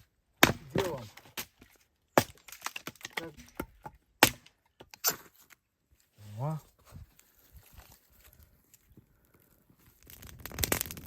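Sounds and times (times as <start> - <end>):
sharp wooden cracks and knocks: 0.4 - 5.4.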